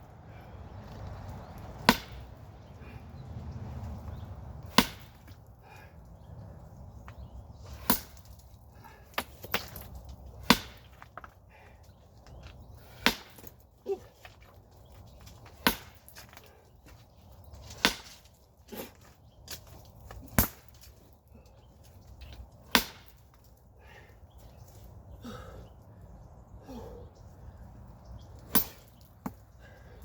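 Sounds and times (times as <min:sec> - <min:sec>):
sledgehammer blows cracking: 0:01.6 - 0:02.5, 0:04.6 - 0:05.5, 0:07.6 - 0:11.2, 0:12.8 - 0:13.6, 0:15.3 - 0:16.4, 0:17.6 - 0:21.0, 0:22.5 - 0:23.4, 0:28.4 - 0:29.4.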